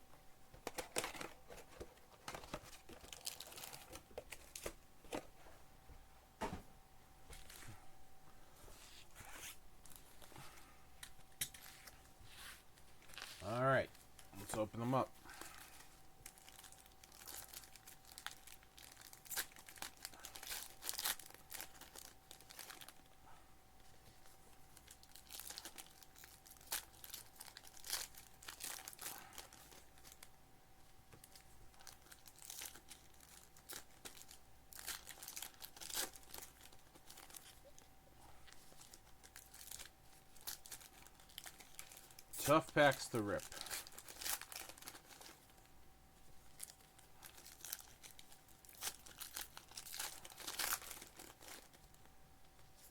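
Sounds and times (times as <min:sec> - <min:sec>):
faint steady hum: 0:00.0 - 0:52.9
foil packs tearing and crinkling: 0:02.2 - 0:04.7, 0:14.4 - 0:23.1, 0:24.8 - 0:30.3, 0:31.2 - 0:37.6, 0:38.7 - 0:45.6, 0:46.5 - 0:52.0.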